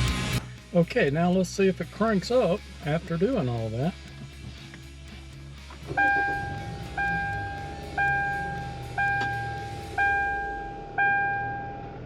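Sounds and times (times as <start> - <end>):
car engine starting and idling: 0.0 - 12.0
dashboard warning chime dings: 6.0 - 11.9.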